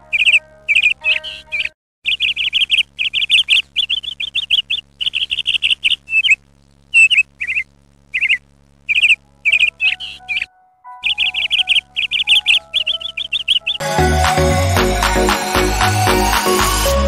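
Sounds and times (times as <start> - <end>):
faint steady hum: 0.0 - 13.8
small bird chirping: 0.0 - 13.8.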